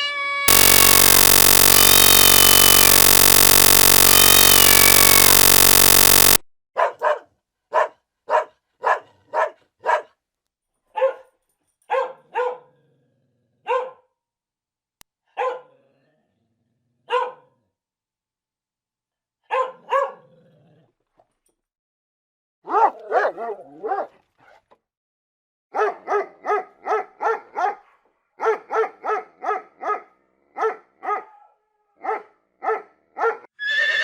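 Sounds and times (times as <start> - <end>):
dog barking: 15.4 - 15.7, 17.1 - 17.4, 19.5 - 20.2, 22.7 - 24.1, 25.8 - 33.4.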